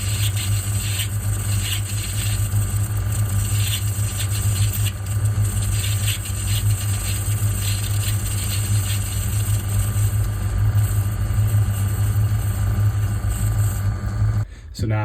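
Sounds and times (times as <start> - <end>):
blade scraping metal: 0.0 - 10.1
metal lathe humming: 0.0 - 14.5.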